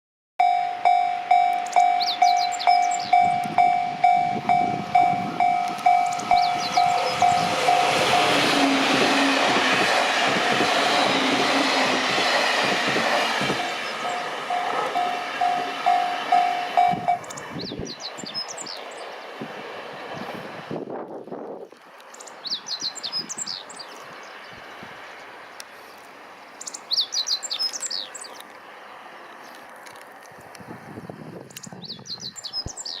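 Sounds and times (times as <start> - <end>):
level crossing warning bell: 0.4 - 8.8, 13.9 - 17.3
electric train passing: 0.4 - 31.4.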